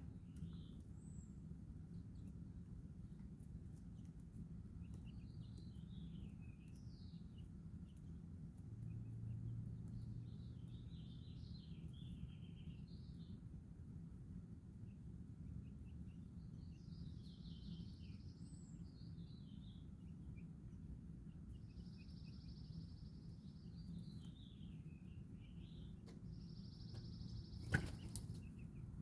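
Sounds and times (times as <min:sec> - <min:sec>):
faint bird chirps: 0:14.8 - 0:29.0.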